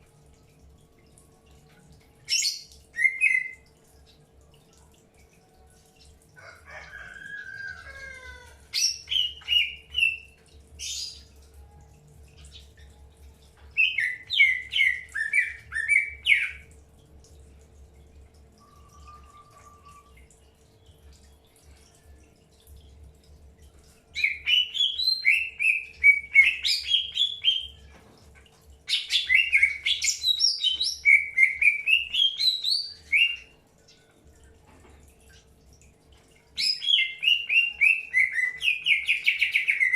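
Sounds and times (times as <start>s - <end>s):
faint steady hum: 0.0s - 39.9s
bird warbling song: 2.3s - 4.2s, 8.7s - 11.4s, 13.7s - 16.7s, 18.6s - 21.4s, 24.2s - 27.9s, 28.9s - 34.2s, 36.6s - 39.9s.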